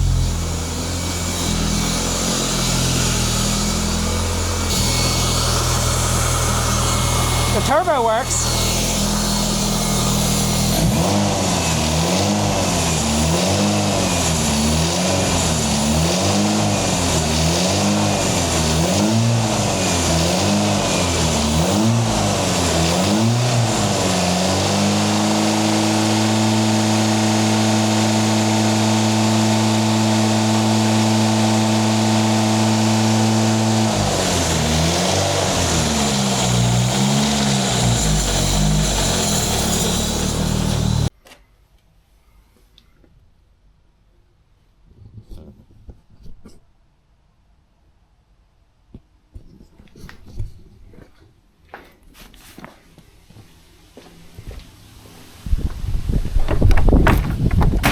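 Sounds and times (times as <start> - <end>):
turbocharged engine revving: 0.0 - 41.1.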